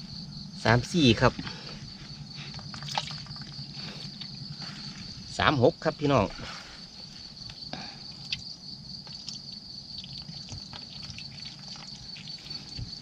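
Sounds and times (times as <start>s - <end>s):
high-pitched insect chorus: 0.0s - 13.0s
muddy water dripping and splashing: 2.4s - 5.1s, 8.2s - 13.0s.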